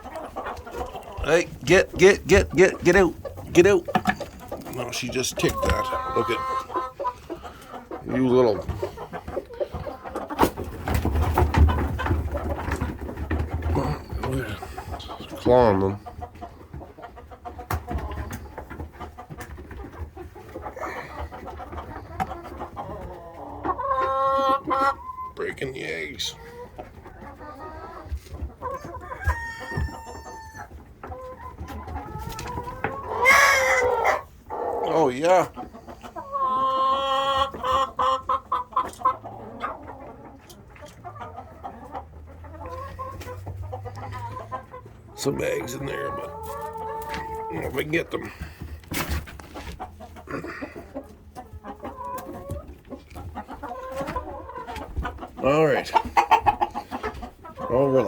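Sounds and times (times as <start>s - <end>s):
chickens clucking softly: 0.0s - 58.0s
loud pitched chicken call: 28.8s - 30.7s, 33.1s - 34.2s.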